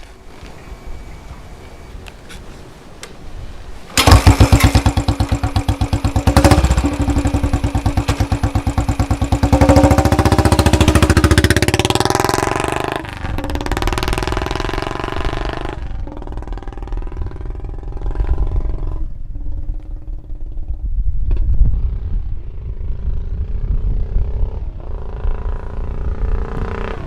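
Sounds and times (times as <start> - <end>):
motorcycle engine exhaust thumping: 4.0 - 19.1.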